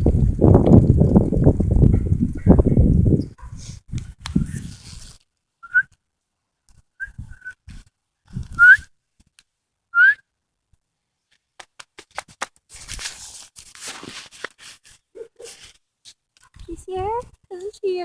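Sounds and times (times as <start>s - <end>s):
rustling: 3.4s - 5.4s, 11.3s - 18.0s
person whistling short calls: 5.6s - 5.9s, 7.0s - 7.7s, 8.5s - 8.9s, 10.0s - 10.2s.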